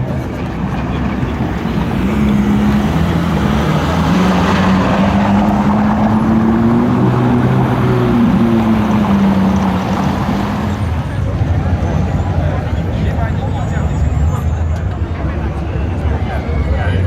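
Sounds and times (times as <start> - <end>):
car engine at low revs: 0.0 - 12.2.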